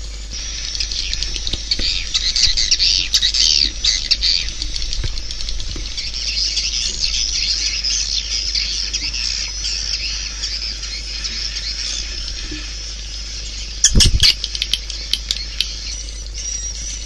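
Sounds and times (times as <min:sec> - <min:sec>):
low hum: 0:00.0 - 0:17.0
swiftlets chirping: 0:13.8 - 0:16.2.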